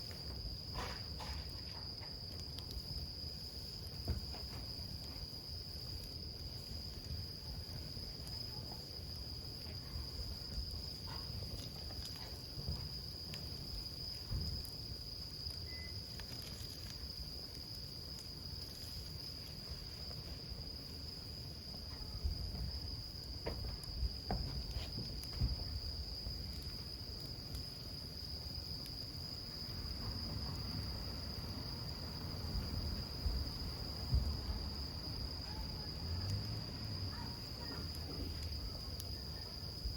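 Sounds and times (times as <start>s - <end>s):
campfire crackling and popping: 0.0s - 39.9s
low fire rumble: 0.0s - 39.9s
insect trilling: 10.0s - 20.6s.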